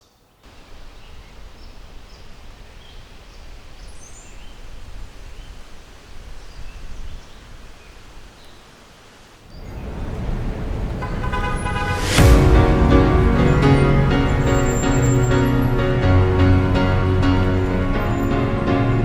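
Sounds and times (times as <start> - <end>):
birds chirping: 0.5 - 8.7, 9.5 - 15.6
low outdoor rumble: 9.5 - 15.6.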